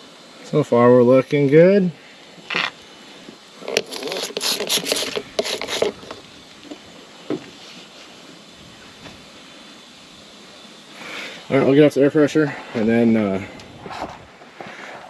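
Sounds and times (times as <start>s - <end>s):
scraping and rattling handling: 3.6s - 6.8s.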